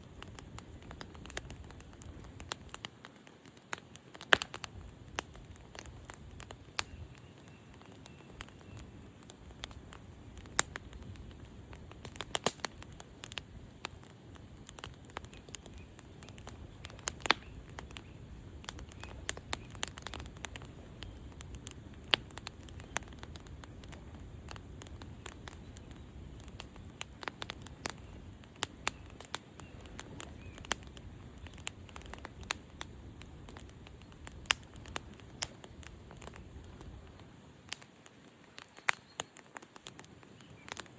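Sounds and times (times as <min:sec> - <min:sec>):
low rumble of flames: 0:00.0 - 0:40.9
sharp pops and snaps: 0:00.0 - 0:40.9
wood fire crackling: 0:00.0 - 0:40.9.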